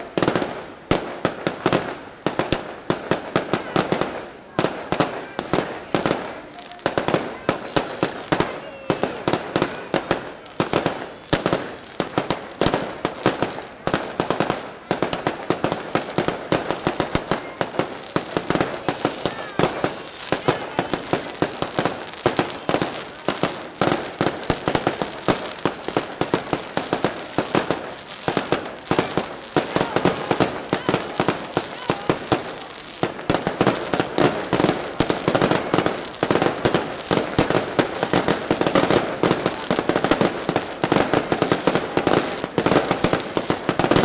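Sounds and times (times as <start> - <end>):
firecracker bangs: 0.0 - 44.0.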